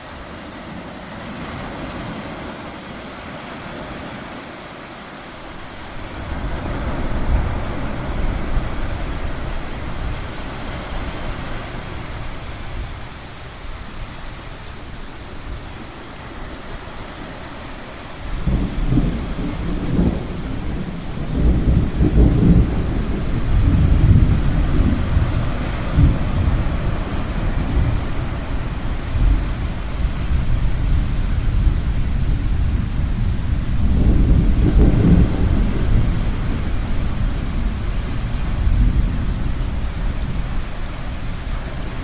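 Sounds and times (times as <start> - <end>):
ocean surf: 0.0 - 42.0
thunder rumbling: 5.6 - 13.6, 18.3 - 42.0.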